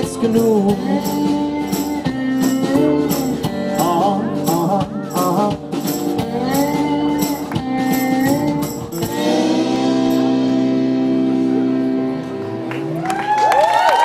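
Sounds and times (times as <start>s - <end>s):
percussion hits: 0.0s - 10.5s
pop-rock band playing: 0.0s - 13.4s.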